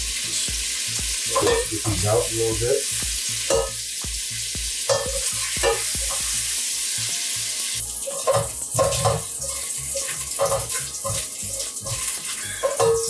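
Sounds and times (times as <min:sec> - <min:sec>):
sausage sizzling in oil: 0:00.0 - 0:13.0
spoon scraping a metal pot: 0:08.1 - 0:12.0.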